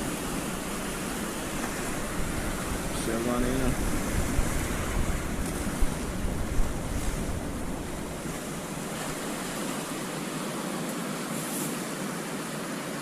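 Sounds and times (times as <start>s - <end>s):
wind buffeting microphone: 0.0s - 10.1s
water rushing: 0.0s - 13.0s.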